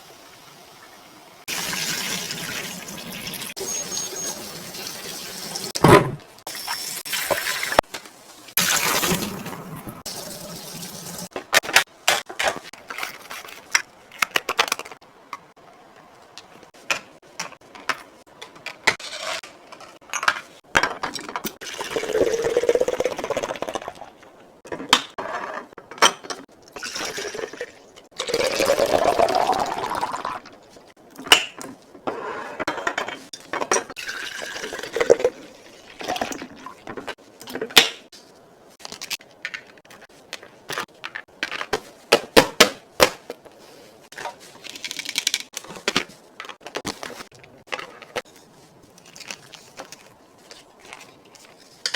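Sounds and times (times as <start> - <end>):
liquid pouring into container: 21.6 - 24.0, 26.8 - 30.4, 34.0 - 36.8
containers clinking and knocking: 32.7 - 37.1.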